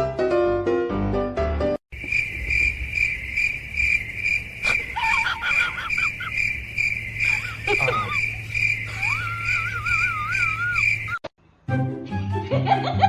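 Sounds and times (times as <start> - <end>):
insect chirping: 1.9 - 11.3
short squeaky calls: 2.1 - 11.2.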